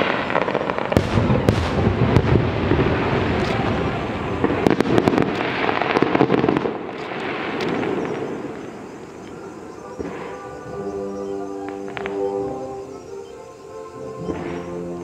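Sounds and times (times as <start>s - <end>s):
fireworks crackling and booming: 0.0s - 13.2s, 14.0s - 15.0s
faint music: 7.8s - 15.0s.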